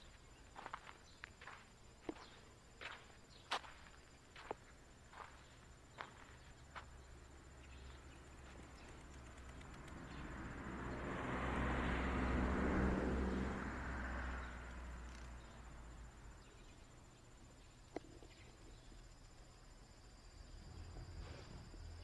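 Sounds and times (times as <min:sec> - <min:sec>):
vehicle passing by: 0:08.0 - 0:16.5.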